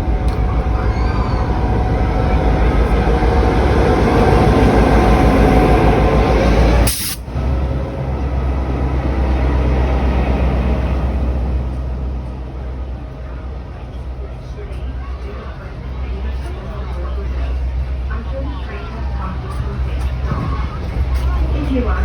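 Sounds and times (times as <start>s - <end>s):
diesel locomotive engine running: 0.0s - 22.0s
train carriages rolling past: 0.0s - 22.0s
sharp hiss: 6.9s - 7.2s.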